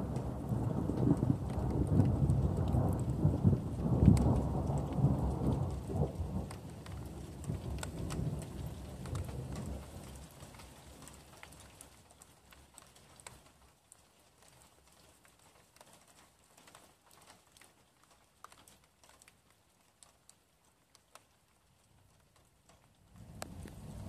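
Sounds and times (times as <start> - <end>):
low thunder rumble: 0.0 - 9.9, 23.1 - 24.0
raindrops ticking: 0.0 - 24.0
soft rain hiss: 0.0 - 24.0.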